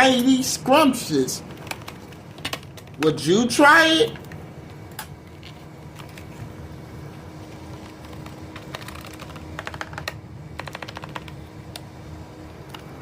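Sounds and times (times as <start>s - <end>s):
steady low hum: 0.0s - 13.0s
scattered clicks: 7.8s - 11.9s.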